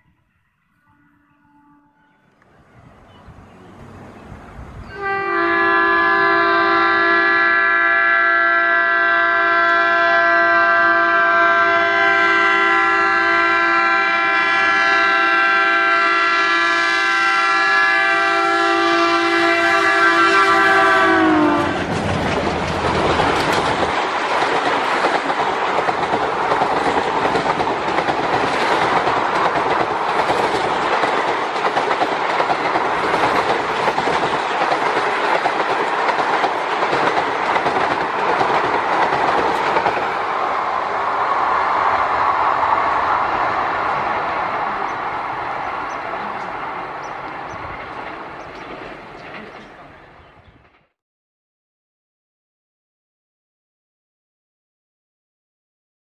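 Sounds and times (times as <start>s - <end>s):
locomotive air horn blast: 0.0s - 2.3s, 4.8s - 21.9s
clickety-clack of train coaches: 9.3s - 50.9s
train wheels rushing on rails: 19.3s - 50.9s.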